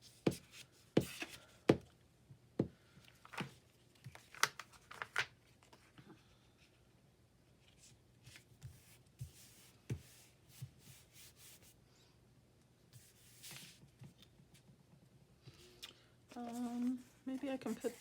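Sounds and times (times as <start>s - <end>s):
paper rustling: 16.4s - 18.0s.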